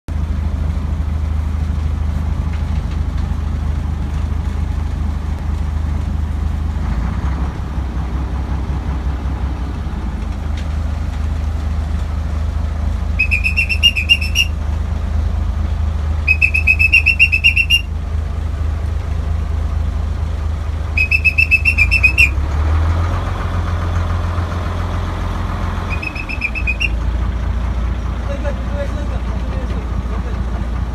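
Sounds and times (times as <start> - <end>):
boat engine humming: 0.1 - 30.9
trilling whistle blown: 13.2 - 14.6, 16.3 - 17.9, 21.0 - 22.4, 25.9 - 27.0.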